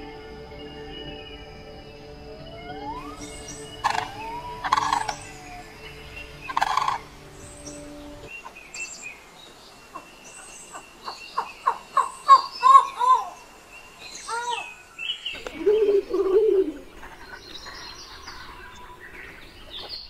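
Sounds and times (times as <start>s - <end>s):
harsh bird calls: 0.5s - 20.0s.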